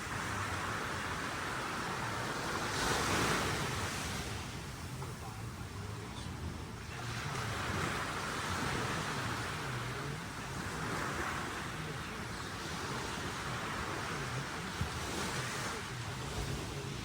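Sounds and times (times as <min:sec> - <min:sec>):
sea waves washing on shore: 0:00.0 - 0:17.0.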